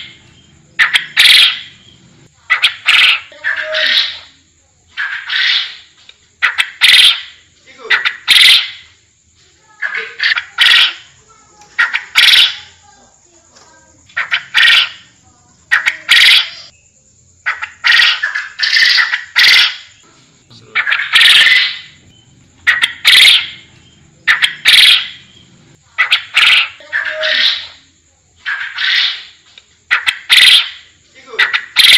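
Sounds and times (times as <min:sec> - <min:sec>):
quail harsh calls: 0:00.8 - 0:01.8, 0:02.5 - 0:09.0, 0:09.8 - 0:12.8, 0:14.2 - 0:15.1, 0:15.7 - 0:16.7, 0:17.4 - 0:19.9, 0:20.7 - 0:22.0, 0:22.6 - 0:25.4, 0:26.0 - 0:27.8, 0:28.4 - 0:31.9.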